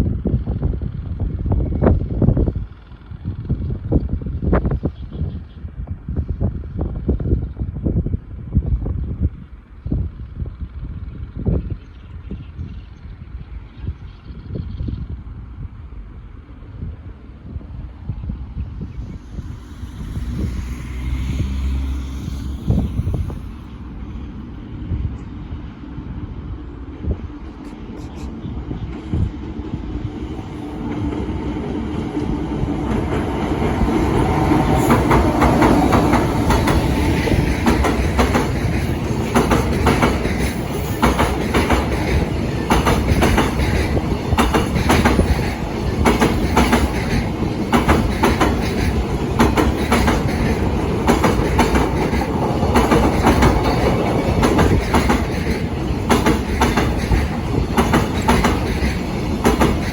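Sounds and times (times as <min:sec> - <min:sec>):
heavy train rumble: 0:00.0 - 0:59.9
train wheels clacking over rail joints: 0:32.0 - 0:59.9.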